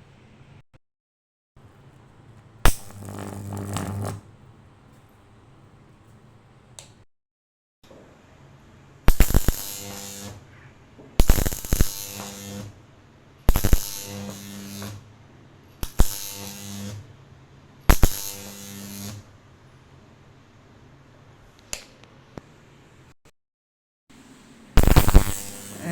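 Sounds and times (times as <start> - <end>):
electric arc cracking: 2.7 - 4.3, 9.1 - 10.4, 11.2 - 12.8, 13.5 - 15.0, 15.8 - 17.0, 17.9 - 19.2, 24.8 - 25.9
loud electrical buzzing: 2.7 - 4.3, 9.1 - 10.4, 11.2 - 12.8, 13.5 - 15.1, 15.8 - 17.1, 17.9 - 19.3, 24.8 - 25.9.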